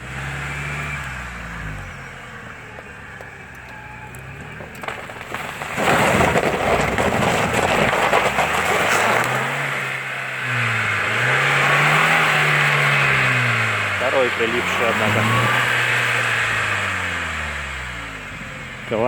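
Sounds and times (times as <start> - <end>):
engine revving: 0.0 - 19.0
tyres churning mud: 4.1 - 17.0.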